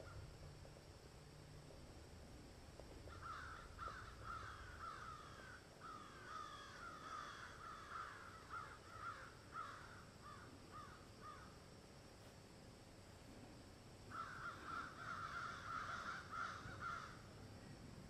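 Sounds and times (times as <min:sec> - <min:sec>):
birds calling: 0:03.1 - 0:11.4, 0:14.1 - 0:17.2.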